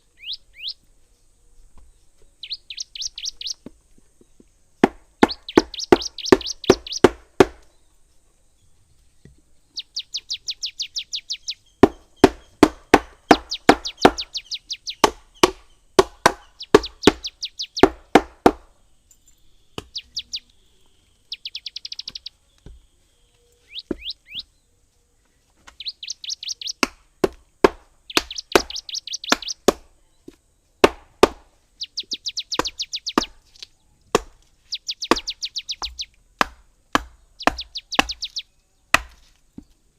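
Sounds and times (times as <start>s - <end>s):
bird chirping trills: 0.0s - 30.9s, 31.5s - 39.9s
sharp knocks in bursts: 4.8s - 7.7s, 11.8s - 18.7s, 23.8s - 24.1s, 26.8s - 29.9s, 30.8s - 31.5s, 32.5s - 33.4s, 35.0s - 39.2s.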